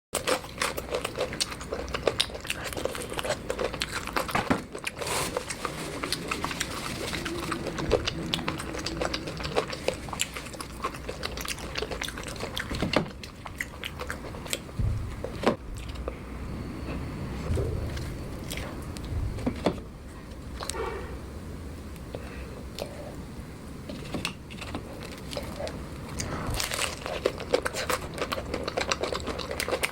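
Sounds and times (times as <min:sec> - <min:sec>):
person biting and chewing food: 0:00.2 - 0:16.1, 0:23.9 - 0:29.9.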